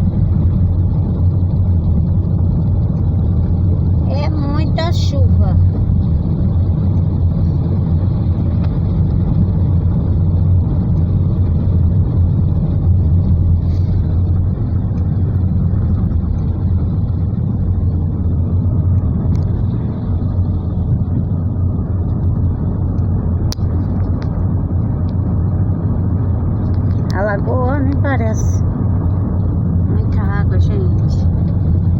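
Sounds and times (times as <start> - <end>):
car interior rumble: 0.0 - 31.9
hiss of rain and wet road: 13.5 - 14.5.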